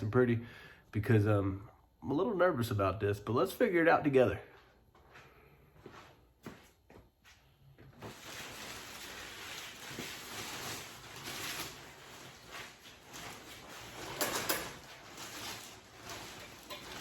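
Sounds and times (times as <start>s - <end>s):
rustling and scraping handling: 4.7s - 17.0s.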